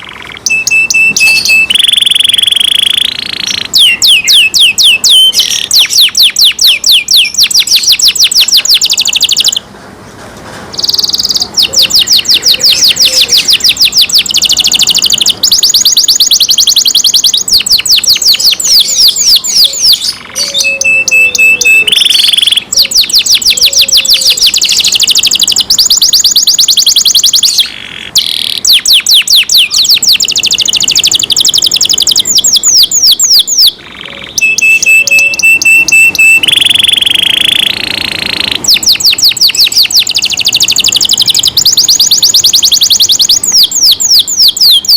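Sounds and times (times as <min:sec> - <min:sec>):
canary singing: 0:00.0 - 0:09.8, 0:10.7 - 0:44.9.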